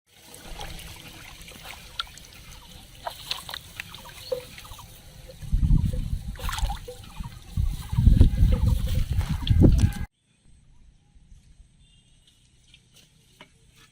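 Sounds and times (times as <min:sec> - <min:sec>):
water trickling and sloshing: 0:00.1 - 0:10.1.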